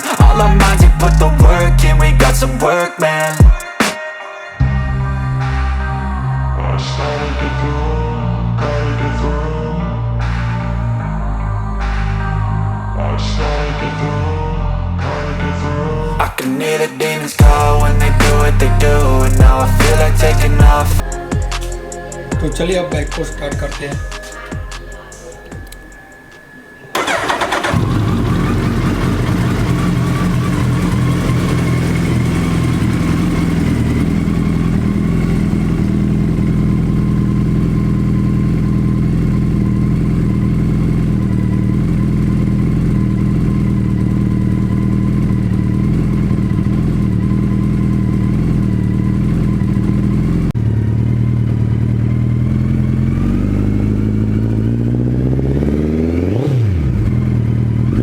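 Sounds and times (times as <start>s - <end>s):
motorcycle engine idling and revving: 0.0s - 2.7s, 17.4s - 24.7s, 26.9s - 58.0s.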